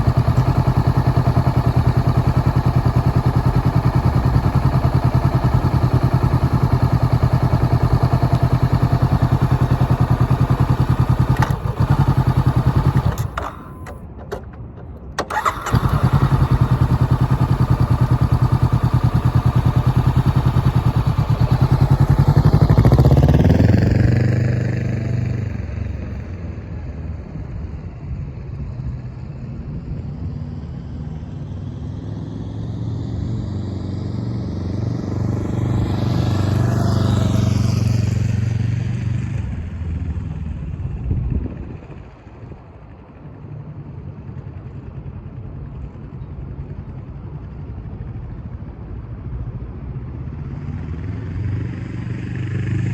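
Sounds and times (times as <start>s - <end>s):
motorcycle passing by: 0.0s - 14.0s, 15.2s - 27.2s, 30.1s - 42.2s, 50.4s - 52.9s
motorcycle engine: 0.0s - 26.8s, 32.6s - 43.4s, 50.5s - 52.9s.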